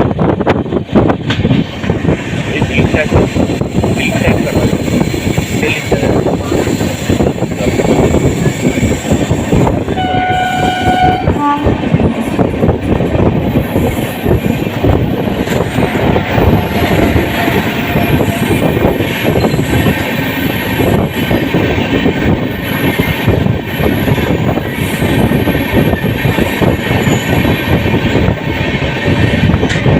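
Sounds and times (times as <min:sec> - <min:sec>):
train rumbling: 0:00.0 - 0:29.9
locomotive horn blast: 0:09.9 - 0:11.9.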